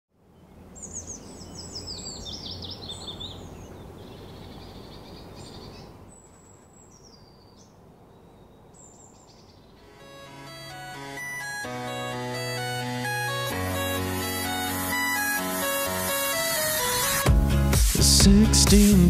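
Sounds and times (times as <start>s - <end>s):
outdoor background noise: 0.1s - 12.3s
songbirds chirping: 0.2s - 17.3s.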